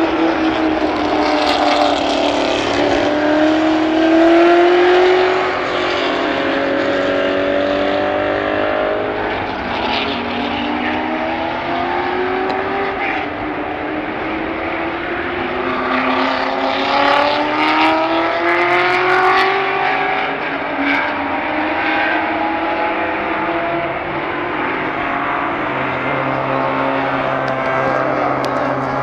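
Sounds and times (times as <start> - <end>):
racing car engine accelerating: 0.0 - 29.0.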